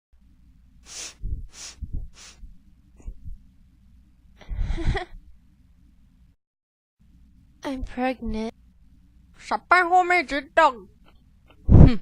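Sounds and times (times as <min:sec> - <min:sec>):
person breathing: 0:00.8 - 0:03.2, 0:04.4 - 0:05.1.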